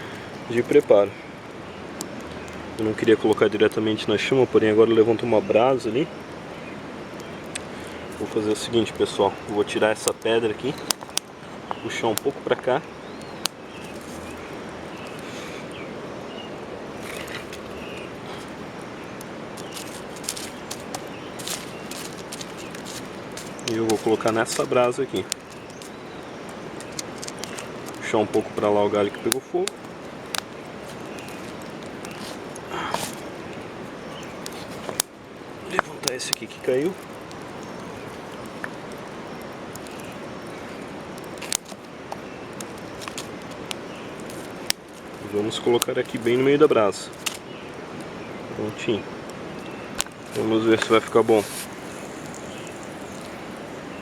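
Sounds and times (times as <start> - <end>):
campfire pops: 0.0 - 4.3, 6.0 - 54.0
outdoor hiss: 0.0 - 54.0
faint bird chirps: 47.4 - 54.0.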